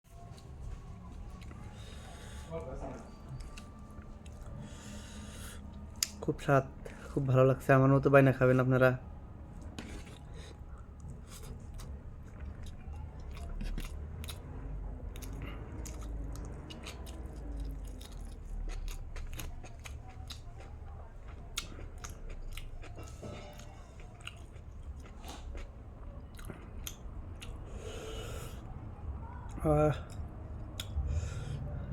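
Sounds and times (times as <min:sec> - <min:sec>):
person chewing crunchy food: 0:09.6 - 0:28.7
low rumble: 0:28.5 - 0:31.9.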